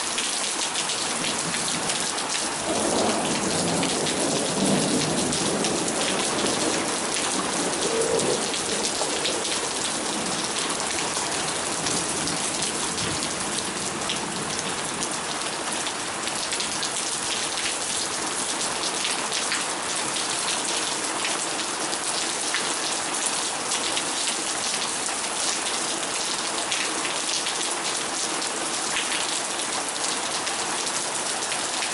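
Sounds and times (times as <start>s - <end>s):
heavy rain pouring: 0.0s - 31.9s
thunder rumble: 1.3s - 13.4s.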